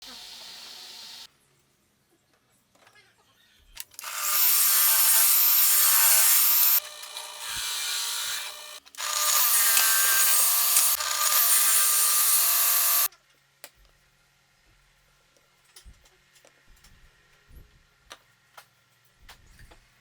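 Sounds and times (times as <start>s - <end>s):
power tool cutting wood: 0.0s - 1.3s, 4.0s - 13.1s.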